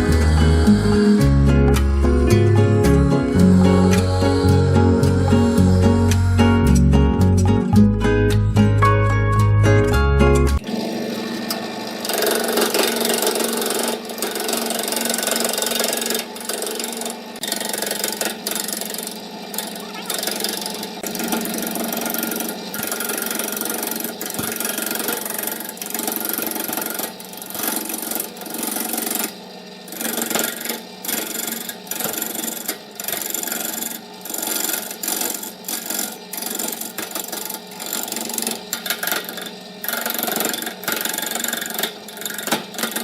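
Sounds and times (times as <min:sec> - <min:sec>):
power tool motor hum: 0:00.0 - 0:06.4, 0:10.6 - 0:43.0
rough scraping and rasping: 0:10.7 - 0:43.0.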